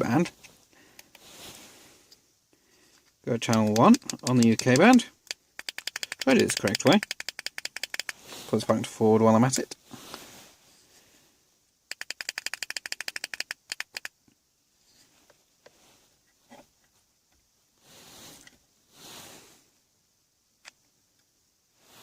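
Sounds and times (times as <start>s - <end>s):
soft rustles: 0.2s - 3.2s, 9.8s - 11.4s, 14.7s - 17.1s, 17.7s - 19.8s
radio channel selector clicks: 3.4s - 8.2s.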